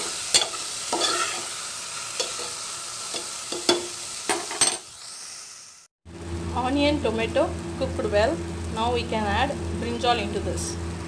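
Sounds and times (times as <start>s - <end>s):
food sizzling in oil: 0.0s - 11.0s
metal spoon scraping a pot: 0.3s - 1.5s.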